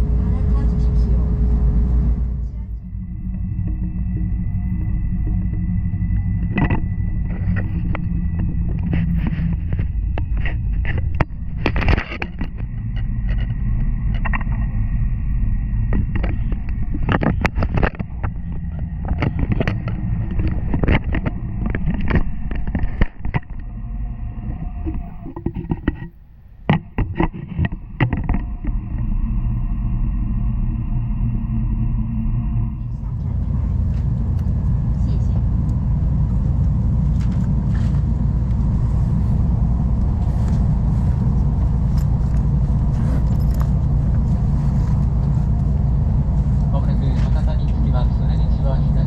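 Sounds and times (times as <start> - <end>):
faint steady whine: 0.0 - 49.0
train rumble inside car: 0.0 - 49.0
sharp clicks and knocks: 4.8 - 14.7, 15.9 - 23.7, 24.4 - 28.8.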